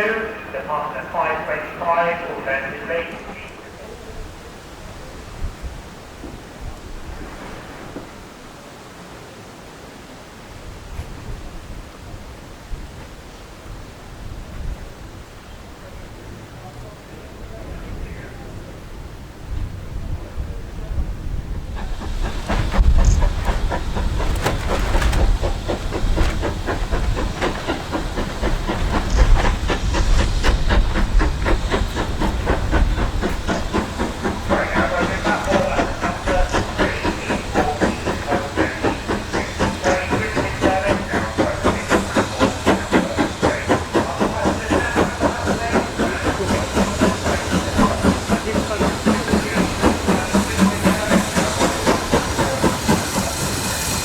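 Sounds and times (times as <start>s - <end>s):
steam hissing: 0.0s - 8.4s, 21.0s - 54.0s
steam locomotive exhaust beats: 15.9s - 54.0s.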